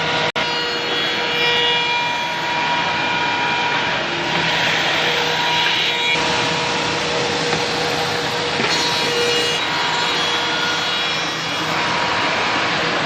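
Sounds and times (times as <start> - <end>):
machine cutter milling wood: 0.0 - 13.0.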